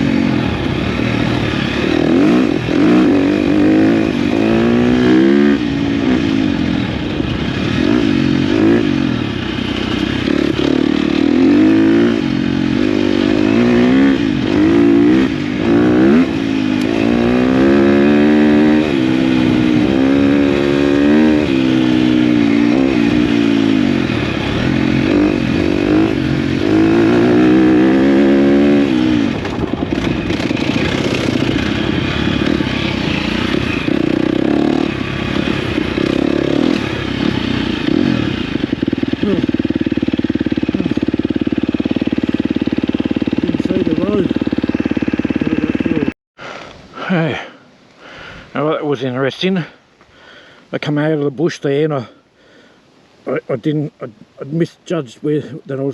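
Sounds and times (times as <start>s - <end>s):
dirt bike engine revving: 0.0s - 47.5s.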